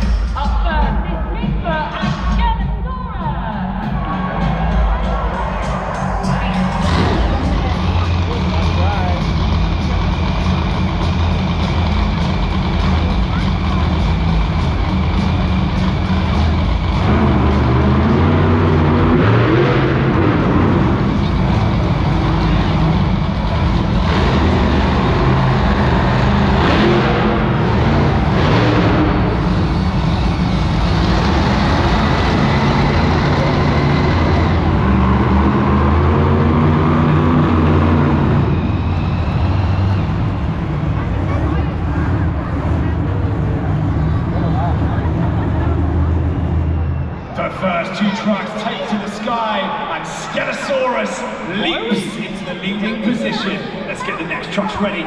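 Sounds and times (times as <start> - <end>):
monster truck engines revving: 0.0 - 55.0.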